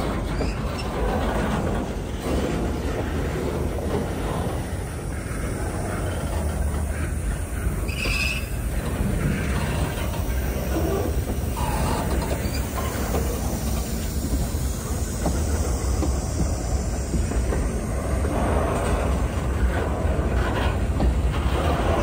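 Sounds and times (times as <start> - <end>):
faint wheel squeals: 0.0 - 1.2, 7.7 - 14.6
diesel locomotive rumble: 0.0 - 22.0
rolling freight cars: 0.0 - 22.0.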